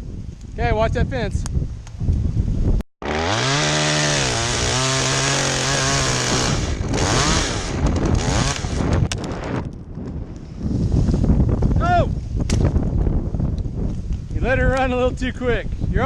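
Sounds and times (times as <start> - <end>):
chainsaw revving and cutting: 3.0 - 9.0.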